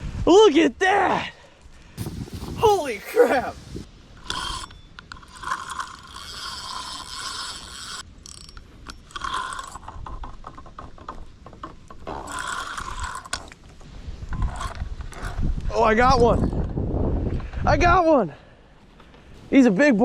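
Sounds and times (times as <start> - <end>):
fishing reel clicking and whirring: 4.3 - 9.9.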